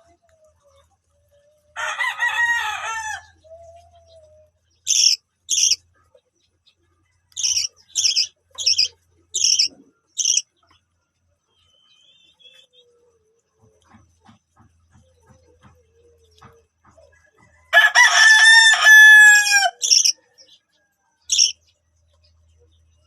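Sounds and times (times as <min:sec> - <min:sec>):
rooster crowing: 0:01.8 - 0:03.4, 0:17.4 - 0:20.2.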